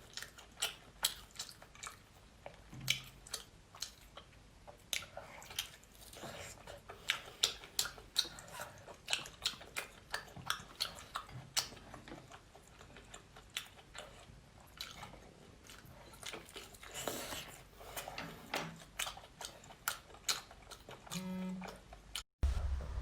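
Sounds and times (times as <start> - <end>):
wet chewing and biting: 0.0 - 18.1, 18.8 - 22.2
longer noisy sound: 22.4 - 23.0.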